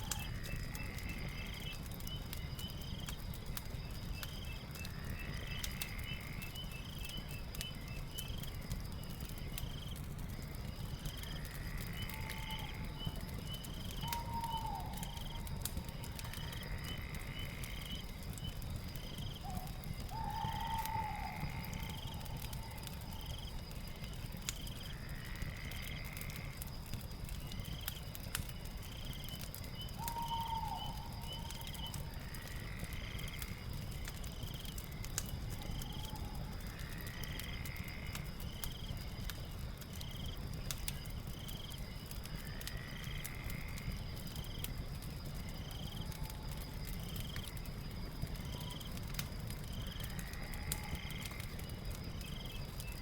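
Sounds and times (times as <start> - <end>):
fire crackling and popping: 0.0 - 53.0
insect trill: 0.0 - 53.0
longer animal call: 19.5 - 22.8.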